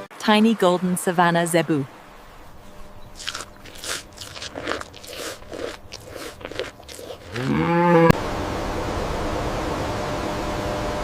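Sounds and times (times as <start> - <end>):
animal chewing feed crunching: 2.6 - 7.7.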